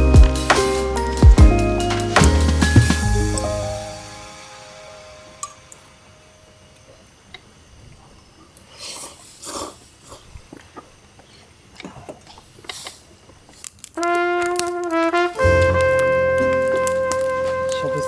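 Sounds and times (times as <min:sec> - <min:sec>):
brass-led music: 0:00.0 - 0:05.8, 0:14.0 - 0:18.0.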